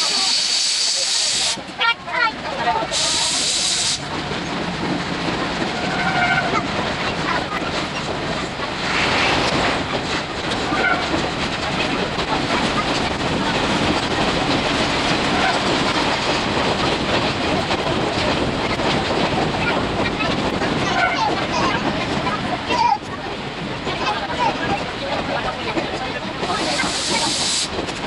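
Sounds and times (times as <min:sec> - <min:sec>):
train coach running noise: 0:00.0 - 0:28.0.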